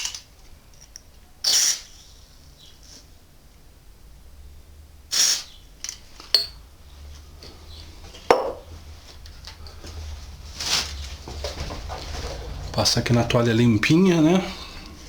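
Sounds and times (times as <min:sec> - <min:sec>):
aerosol spray hiss: 0:05.1 - 0:05.5.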